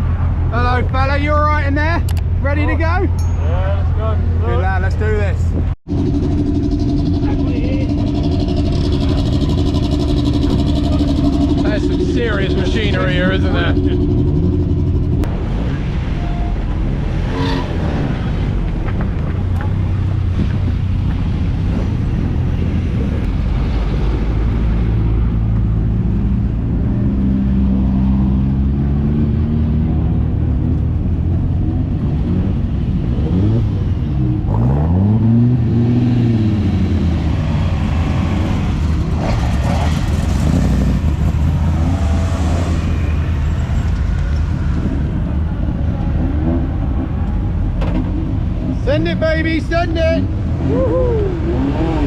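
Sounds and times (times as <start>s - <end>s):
race car engines idling: 0.3s - 16.9s
engine revving: 5.8s - 49.6s, 50.2s - 52.0s.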